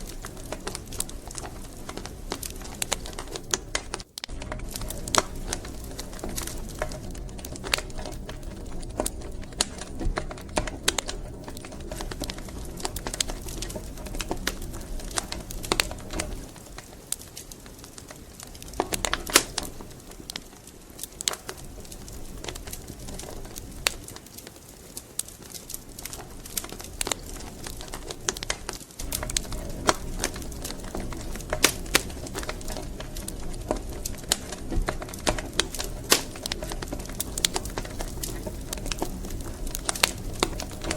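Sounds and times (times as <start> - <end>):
low rumble of burning: 0.0 - 40.9
wood fire crackling: 0.0 - 40.9.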